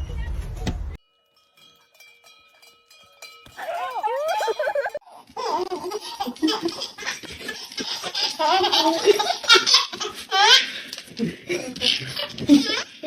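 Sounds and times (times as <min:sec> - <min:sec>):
people laughing hard: 0:03.6 - 0:13.0.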